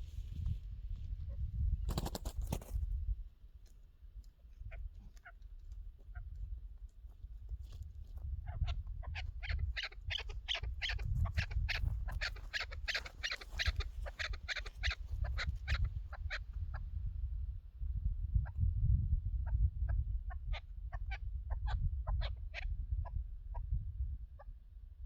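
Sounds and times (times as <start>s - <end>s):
partridge calling: 8.4s - 16.4s.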